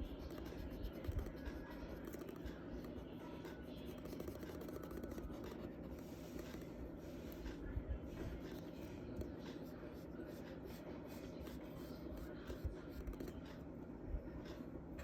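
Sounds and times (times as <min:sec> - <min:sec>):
charcoal scratching on paper: 0:00.0 - 0:07.6
faint low hum: 0:00.0 - 0:15.0.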